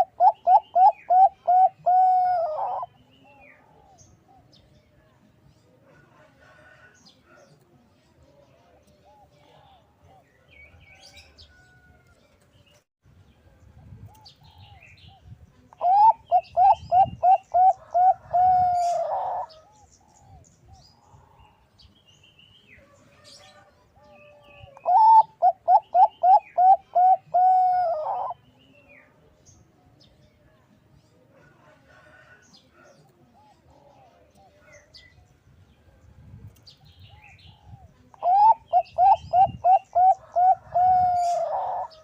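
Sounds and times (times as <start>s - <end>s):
dove cooing: 0.0s - 4.6s, 15.8s - 20.4s, 24.4s - 28.4s, 37.1s - 42.0s.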